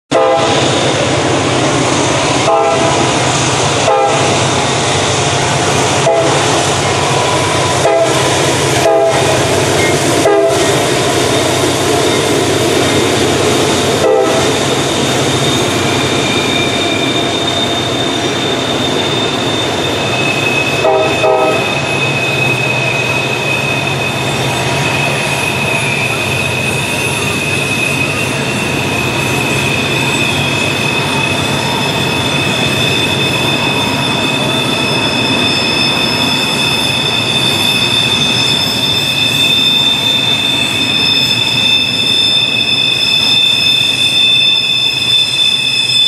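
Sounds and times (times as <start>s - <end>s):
diesel locomotive engines under load: 0.1s - 46.0s.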